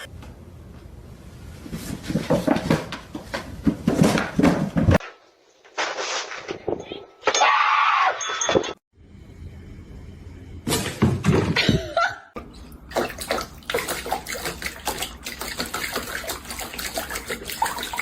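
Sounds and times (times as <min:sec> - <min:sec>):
running water splashing: 0:12.4 - 0:18.0.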